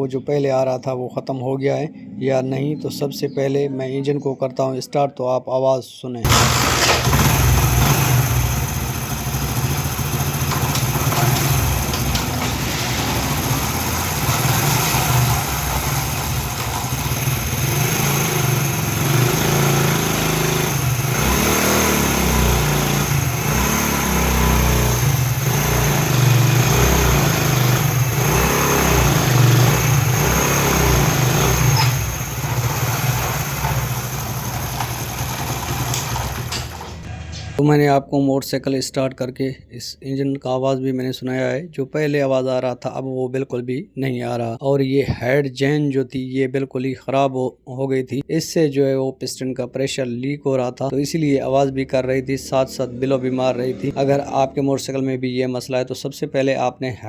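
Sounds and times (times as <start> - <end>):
motorcycle engine revving: 6.3 - 37.6.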